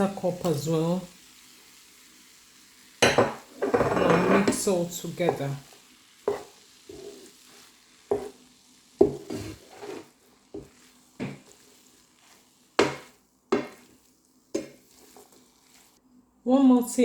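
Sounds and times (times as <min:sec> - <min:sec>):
faint sizzle: 0:00.0 - 0:17.0
spatula scraping a frying pan: 0:03.5 - 0:05.5, 0:06.1 - 0:16.0.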